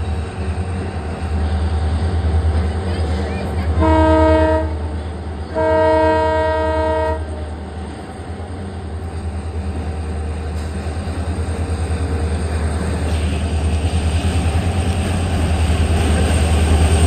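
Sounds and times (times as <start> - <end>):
train rumbling on bridge: 0.0 - 17.0
train horn chord: 3.8 - 7.5.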